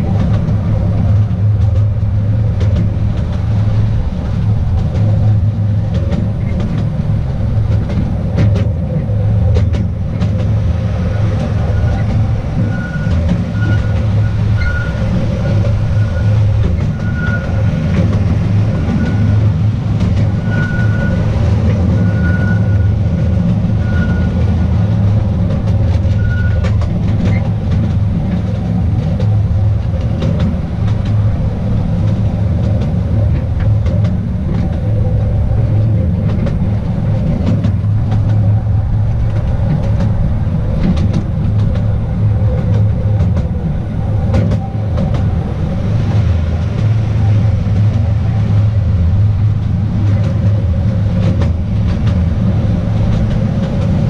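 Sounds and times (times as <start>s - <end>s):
train rumbling along track: 0.0s - 54.0s
wheels clicking on rails: 0.0s - 54.0s
high squeal: 11.1s - 18.0s, 20.2s - 23.1s, 23.7s - 24.7s, 26.1s - 26.7s.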